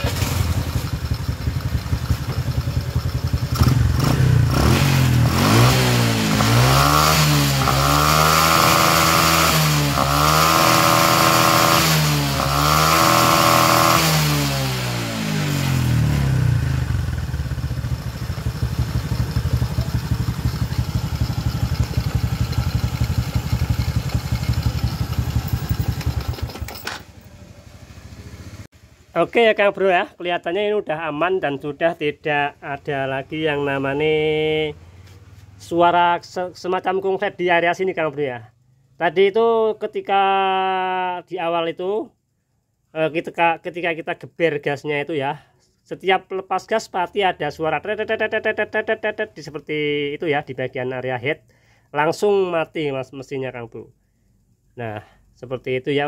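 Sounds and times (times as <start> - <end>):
motorcycle engine idling and revving: 0.0 - 29.2, 32.8 - 35.6.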